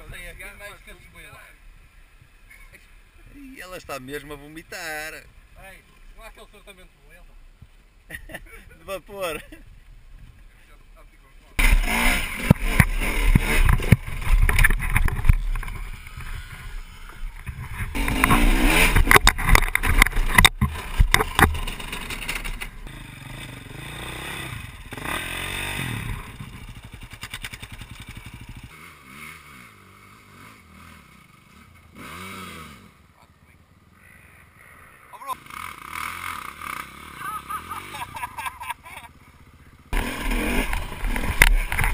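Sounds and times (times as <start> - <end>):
dirt bike engines revving: 0.0 - 41.9
knocks and clatter: 17.4 - 22.7.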